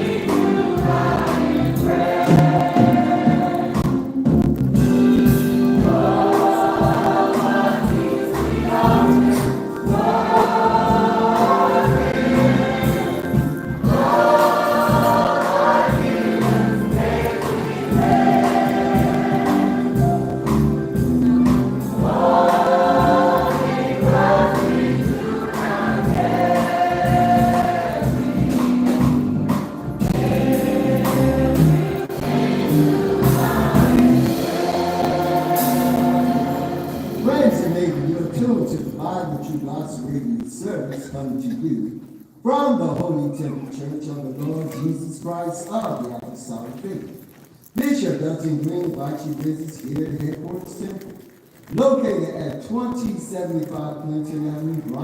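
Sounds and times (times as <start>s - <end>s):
gospel choir singing: 0.0s - 4.3s, 5.0s - 40.0s
instrumental accompaniment: 0.0s - 39.1s.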